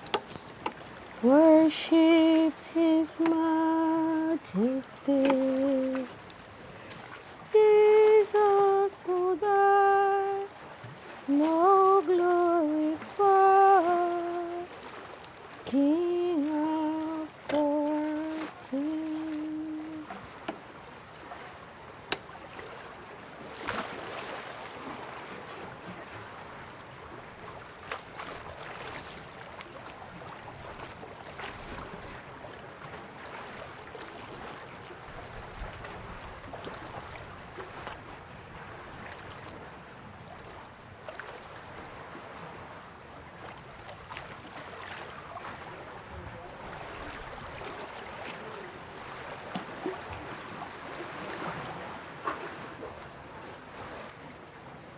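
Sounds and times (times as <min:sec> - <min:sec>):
waves washing: 0:00.0 - 0:26.4, 0:43.4 - 0:54.4
wind: 0:00.0 - 0:54.9.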